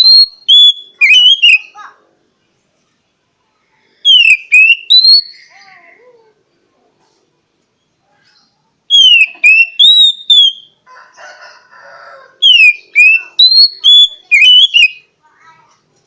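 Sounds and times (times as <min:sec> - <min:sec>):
bird whistling song: 0:00.0 - 0:01.8, 0:04.0 - 0:05.5, 0:08.9 - 0:10.8, 0:12.4 - 0:15.1.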